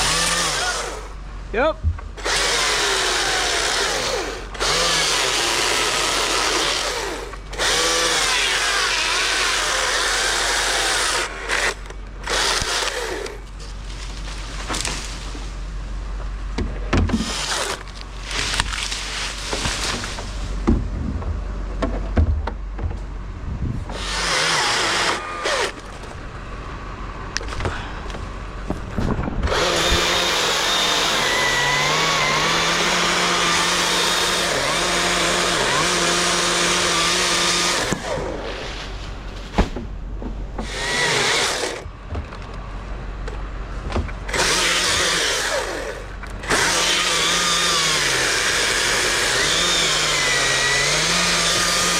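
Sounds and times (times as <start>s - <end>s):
chainsaw revving and cutting: 0.0s - 1.2s, 2.2s - 13.4s, 17.1s - 20.3s, 23.9s - 25.8s, 29.5s - 38.8s, 40.6s - 41.8s, 44.3s - 51.9s.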